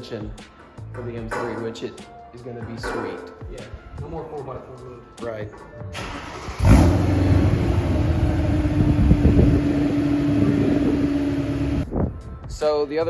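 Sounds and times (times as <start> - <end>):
car engine with loud exhaust: 6.5 - 11.9.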